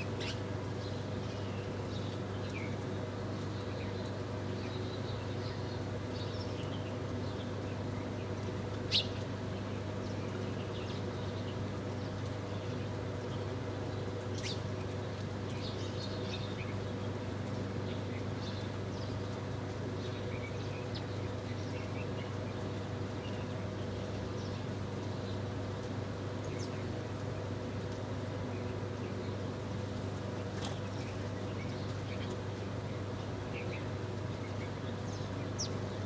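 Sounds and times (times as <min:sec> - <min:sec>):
small birds chirping: 0:00.0 - 0:02.8, 0:08.9 - 0:09.2, 0:28.5 - 0:36.0.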